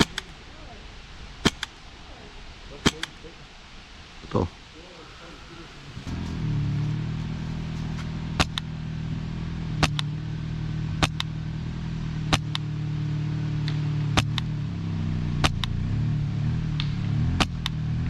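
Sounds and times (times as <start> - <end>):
airsoft rifle shots: 0.0 - 0.4, 1.4 - 1.9, 2.7 - 3.4, 8.0 - 8.7, 9.8 - 10.1, 11.0 - 11.4, 12.3 - 12.7, 13.6 - 14.6, 15.4 - 15.8, 16.8 - 17.8
bb striking target: 0.0 - 0.4, 6.0 - 8.8, 9.7 - 10.2, 10.9 - 11.4, 12.2 - 12.7, 13.6 - 14.6, 15.4 - 15.8, 16.6 - 17.9
low engine hum: 4.8 - 18.0.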